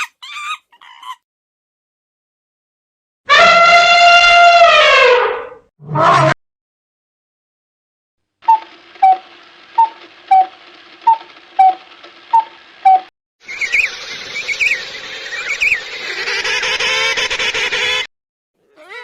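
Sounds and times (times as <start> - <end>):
chorus of birds calling: 13.4 - 18.1, 18.7 - 19.0.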